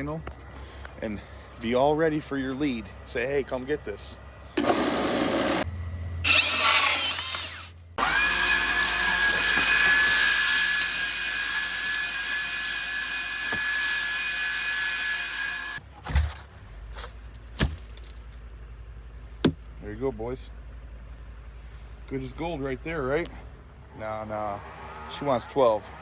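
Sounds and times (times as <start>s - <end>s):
small electric motor whining: 4.6s - 15.8s.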